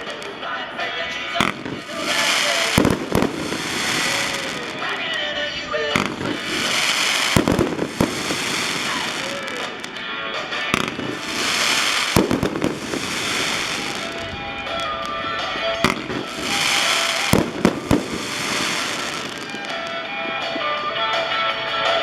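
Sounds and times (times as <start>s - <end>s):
music playing: 0.0s - 22.0s
fireworks bangs: 1.4s - 10.0s, 10.7s - 20.6s.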